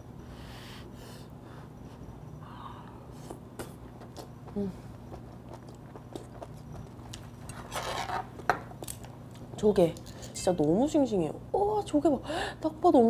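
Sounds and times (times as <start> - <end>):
person chewing wetly: 3.2 - 7.6
person humming briefly: 4.5 - 4.9.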